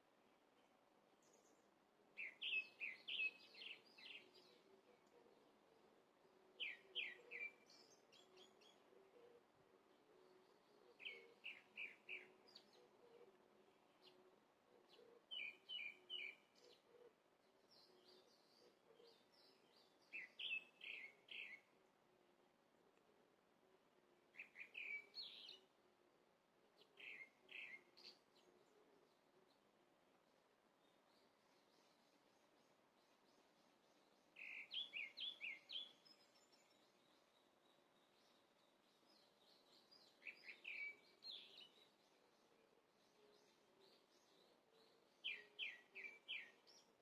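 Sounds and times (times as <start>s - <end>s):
songbird chirping: 0.0s - 47.0s.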